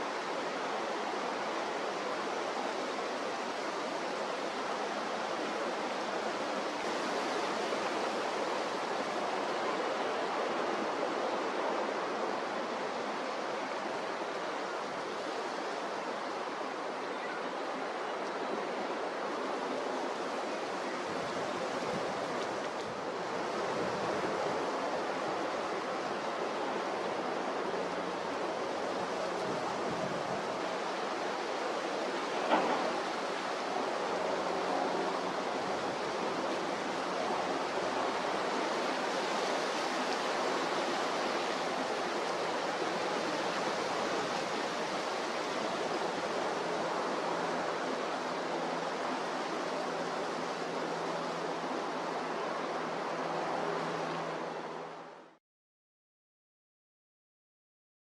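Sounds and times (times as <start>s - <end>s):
rough sea: 0.0s - 55.4s
strong wind: 0.0s - 55.4s
brief knock: 32.5s - 32.9s.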